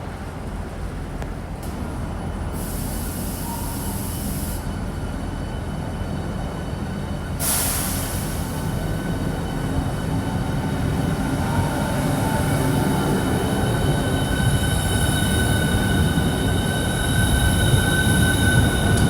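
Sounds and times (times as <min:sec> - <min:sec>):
electric train rumbling: 0:00.0 - 0:19.0
train hiss: 0:02.4 - 0:05.0, 0:07.3 - 0:19.0.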